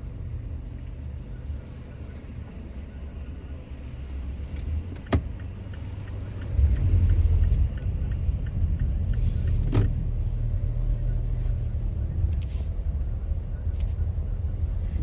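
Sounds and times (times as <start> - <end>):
car road and engine rumble: 0.0 - 15.0
light regular ticking: 4.9 - 9.6.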